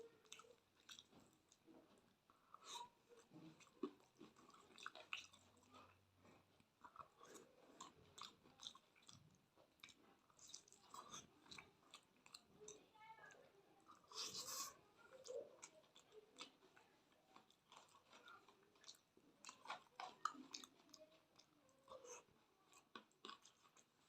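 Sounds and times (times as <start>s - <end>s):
faint chewing and mouth clicks: 0.0s - 24.0s.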